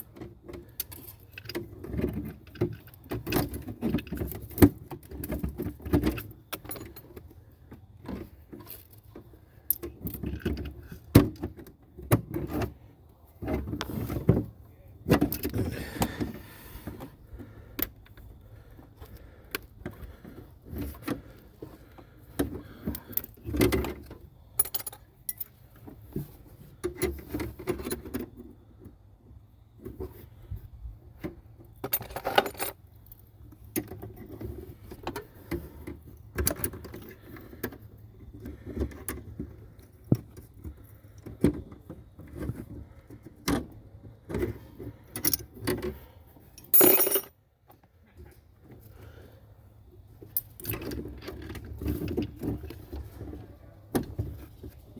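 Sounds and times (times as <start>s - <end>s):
metal tools clinking and knocking: 24.6s - 25.6s, 31.8s - 32.8s, 45.1s - 45.5s, 46.6s - 47.4s.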